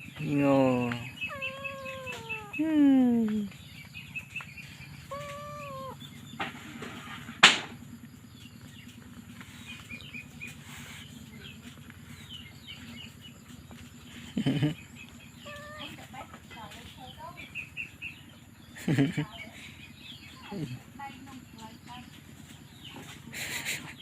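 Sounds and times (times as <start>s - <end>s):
kitten mewing: 0.7s - 3.5s, 5.0s - 6.0s, 15.4s - 16.2s.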